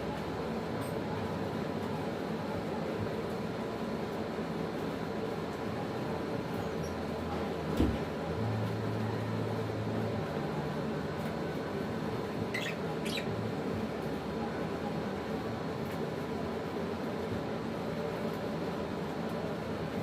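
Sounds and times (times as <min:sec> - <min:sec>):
steady background hum: 0:00.0 - 0:20.0
lovebird chirps: 0:12.5 - 0:13.4.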